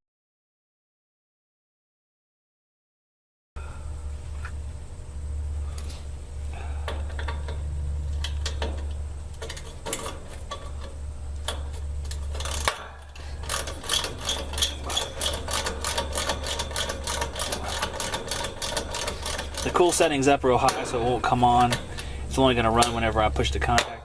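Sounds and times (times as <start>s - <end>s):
steady low hum: 3.6s - 24.0s
metal clicks: 6.8s - 24.0s
ratchet wrench clicking: 7.1s - 23.1s.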